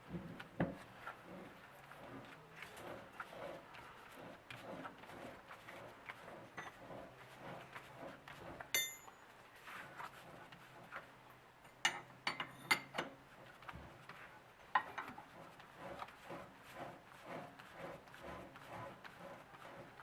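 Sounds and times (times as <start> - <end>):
metal chuck clinking and knocking: 8.8 - 9.2, 11.7 - 13.0.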